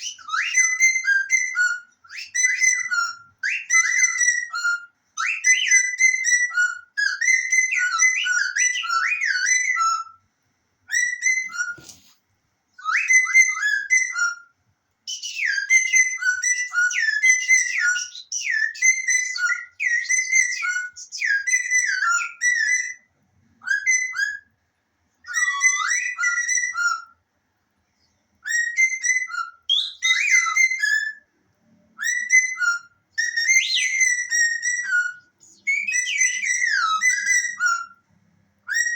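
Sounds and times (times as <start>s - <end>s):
parrot whistling: 0.0s - 10.2s, 10.9s - 12.1s, 12.8s - 14.5s, 15.1s - 24.5s, 25.2s - 27.2s, 28.4s - 38.0s, 38.6s - 38.9s.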